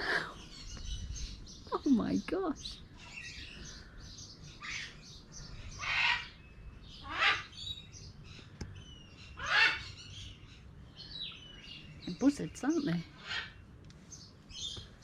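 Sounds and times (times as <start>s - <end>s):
bird squawking: 4.6s - 5.0s, 5.6s - 7.8s, 9.3s - 10.4s, 13.2s - 13.6s.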